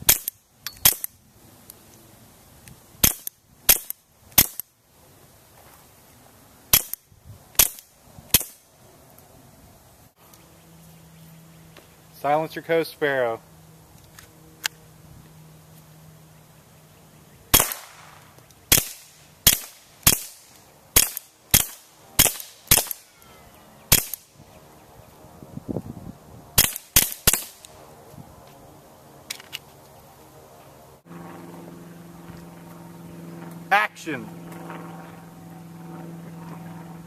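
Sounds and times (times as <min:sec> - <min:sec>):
suppressed pistol shots: 0:17.5 - 0:20.4, 0:21.0 - 0:23.0, 0:23.9 - 0:24.2, 0:26.6 - 0:27.7.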